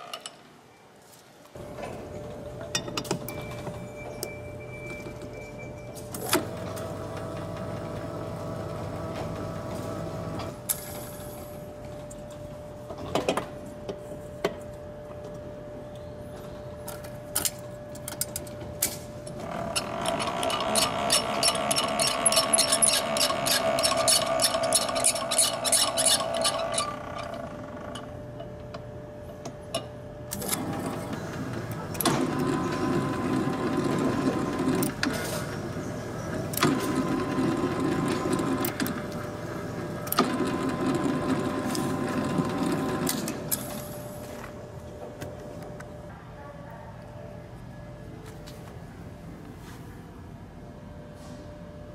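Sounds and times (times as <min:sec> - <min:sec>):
mixer motor whining: 0:19.4 - 0:27.9, 0:30.4 - 0:43.5.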